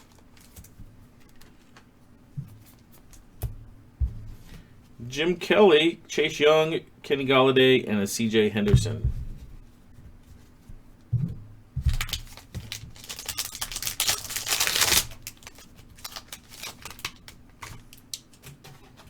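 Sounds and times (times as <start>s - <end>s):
wrapper tearing and crinkling: 11.9s - 18.4s
cards clicking and rustling: 11.9s - 18.8s.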